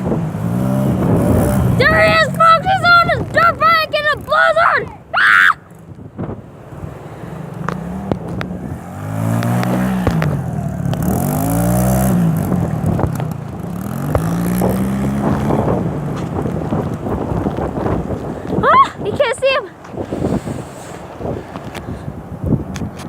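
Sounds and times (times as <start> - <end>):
dirt bike engine revving: 0.0 - 3.5, 6.8 - 17.5.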